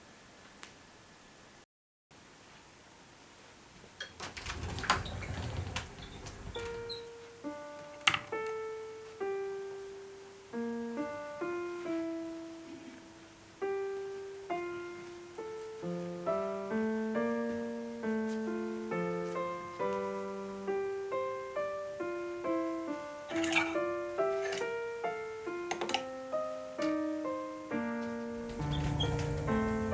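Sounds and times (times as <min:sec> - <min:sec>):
gentle solo piano: 0:10.5 - 0:29.9.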